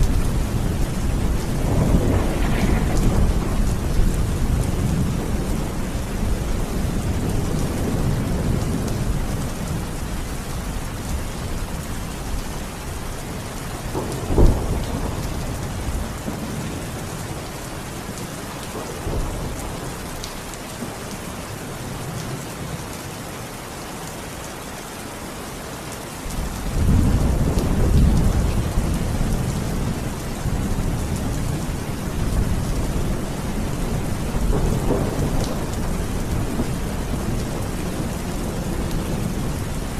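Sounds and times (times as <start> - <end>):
sharp thunderclap: 0.0 - 8.9, 14.0 - 16.6, 33.9 - 37.4
rolling thunder: 0.0 - 10.0, 13.8 - 17.4, 26.3 - 39.9
steady rain falling: 0.0 - 39.9.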